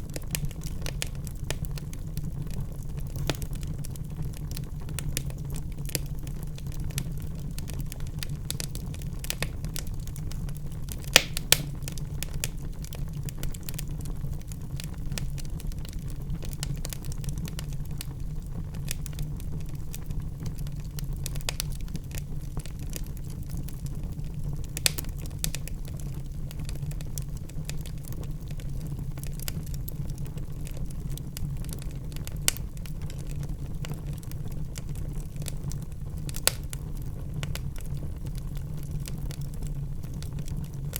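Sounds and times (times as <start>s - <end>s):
low fire rumble: 0.0s - 40.9s
wood fire crackling and popping: 0.0s - 40.9s.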